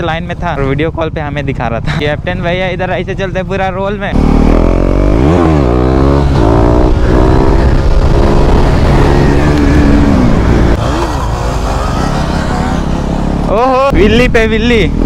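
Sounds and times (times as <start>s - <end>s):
motorcycle engine revving: 4.0s - 15.0s.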